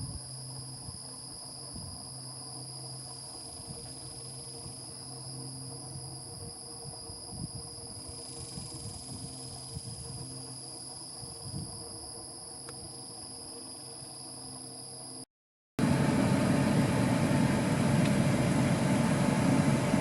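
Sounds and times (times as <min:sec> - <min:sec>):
insects trilling: 0:00.0 - 0:15.3.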